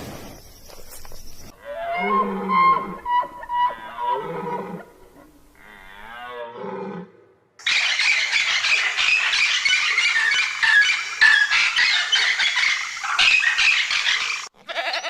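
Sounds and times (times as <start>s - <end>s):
animal crying: 1.6s - 4.8s, 11.3s - 15.0s.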